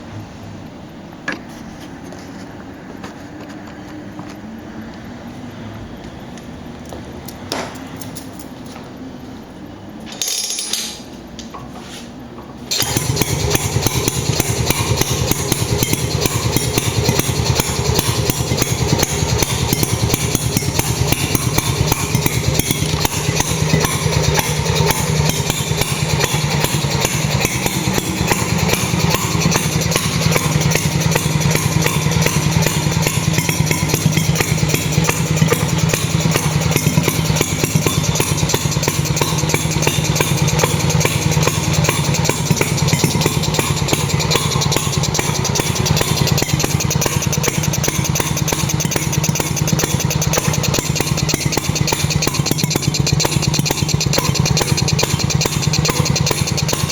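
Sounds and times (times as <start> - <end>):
two-stroke boat engine running: 12.7 - 56.9.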